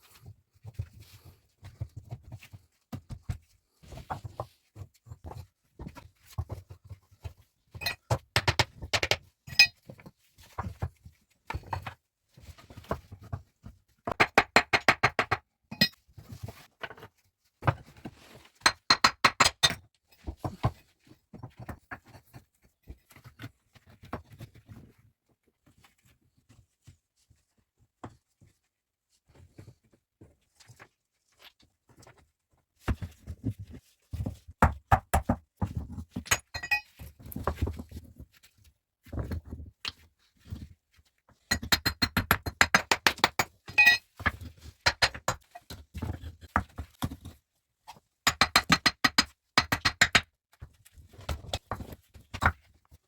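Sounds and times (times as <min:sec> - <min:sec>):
objects clinking and knocking: 0:07.8 - 0:09.8, 0:15.7 - 0:16.0, 0:36.2 - 0:37.1, 0:41.5 - 0:45.6.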